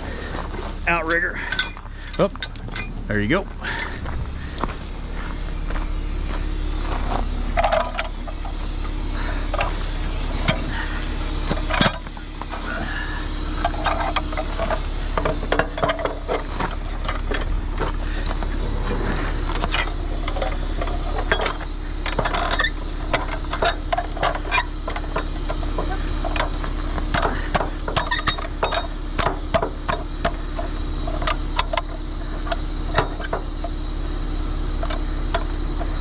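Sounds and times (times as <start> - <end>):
diesel truck engine idling: 0.0 - 36.0
metallic chain clinks and clanks: 1.3 - 3.2.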